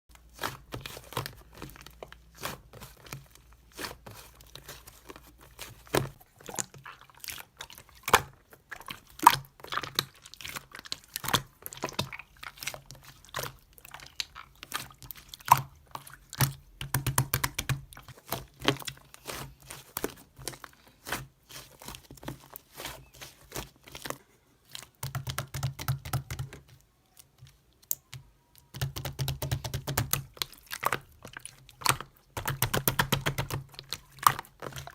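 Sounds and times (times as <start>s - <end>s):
slime squished by hand: 0.1s - 34.9s.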